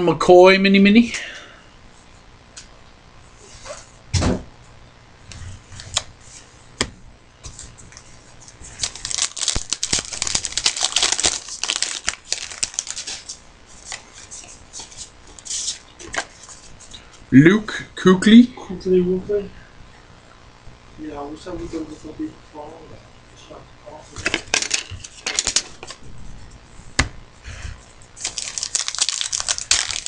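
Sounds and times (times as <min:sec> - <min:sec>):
card pack wrapper crinkling: 0:07.9 - 0:16.4, 0:24.2 - 0:26.0, 0:28.2 - 0:30.0.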